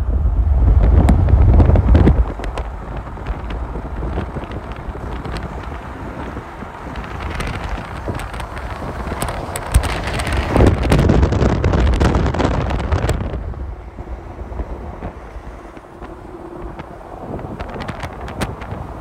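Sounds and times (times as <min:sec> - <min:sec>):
train passing: 0:00.0 - 0:19.0
wind buffeting microphone: 0:00.0 - 0:19.0.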